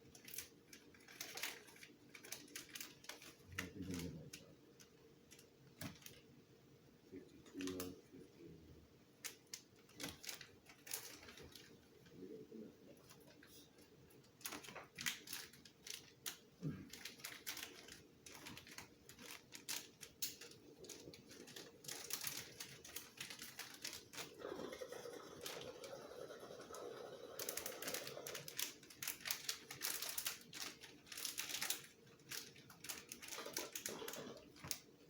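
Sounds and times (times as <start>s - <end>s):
plastic items clicking and clattering: 0.0s - 6.2s, 9.2s - 12.2s, 14.2s - 26.0s, 27.3s - 35.0s
rustling: 9.2s - 26.4s.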